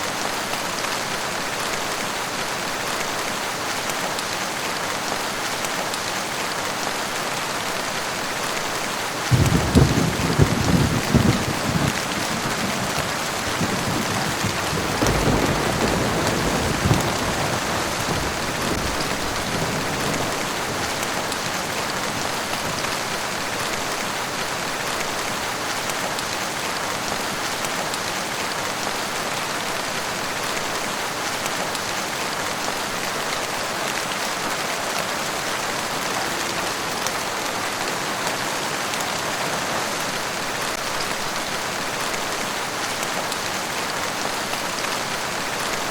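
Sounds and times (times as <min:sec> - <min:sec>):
rain pattering: 0:00.0 - 0:45.9
thunder rumble: 0:09.3 - 0:22.8.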